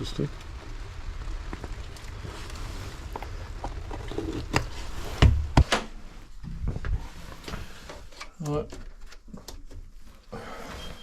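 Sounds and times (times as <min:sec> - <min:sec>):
sharp knocks and thumps: 0:04.4 - 0:07.0.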